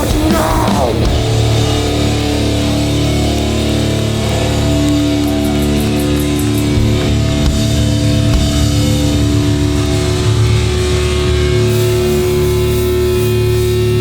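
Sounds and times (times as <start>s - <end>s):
bass and drums: 0.0s - 14.0s
distorted electric guitars: 0.0s - 14.0s.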